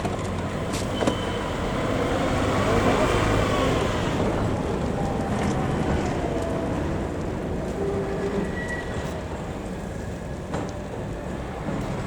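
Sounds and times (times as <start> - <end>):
electric tram rumbling: 0.0 - 12.0
tram wheels squealing: 0.6 - 6.7, 7.8 - 10.4.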